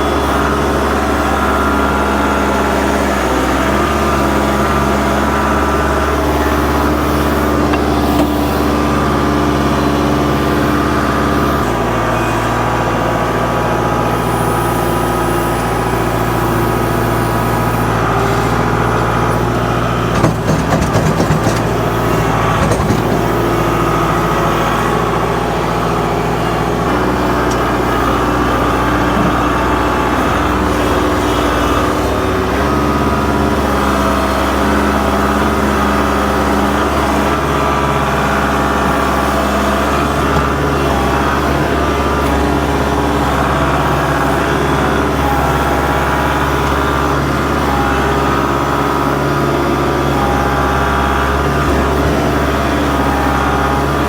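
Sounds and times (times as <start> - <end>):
heavy engine running: 0.0 - 54.0
knocks and clanks: 20.1 - 23.7.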